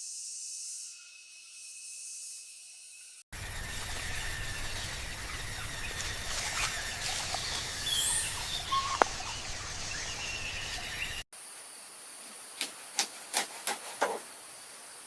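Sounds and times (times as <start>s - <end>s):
outdoor ambience: 0.0s - 15.0s
bird chirps: 3.4s - 11.2s.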